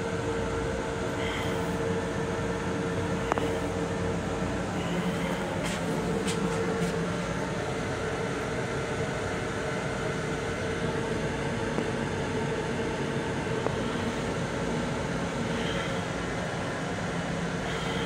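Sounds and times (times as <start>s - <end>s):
railcar low rumble: 0.0s - 12.1s
steady hum: 0.0s - 18.0s.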